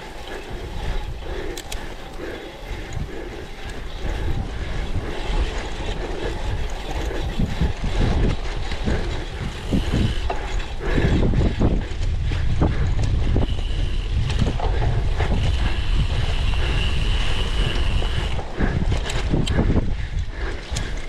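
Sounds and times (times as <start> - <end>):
bike rattling over bumps: 0.0 - 21.0
wind on microphone: 0.0 - 21.0.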